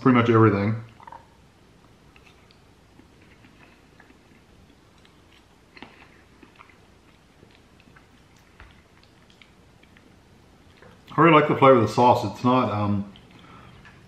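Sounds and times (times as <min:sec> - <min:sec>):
person chewing: 0:00.9 - 0:11.1, 0:13.1 - 0:14.0.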